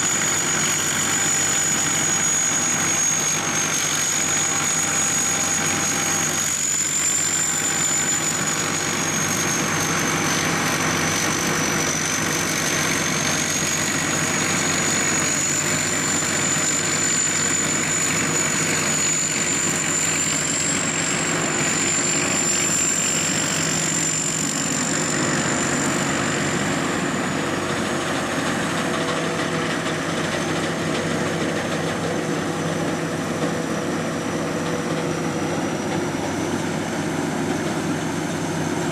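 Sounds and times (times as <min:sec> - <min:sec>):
combine harvester running: 0:00.0 - 0:38.9
high wavering whine: 0:00.0 - 0:38.9.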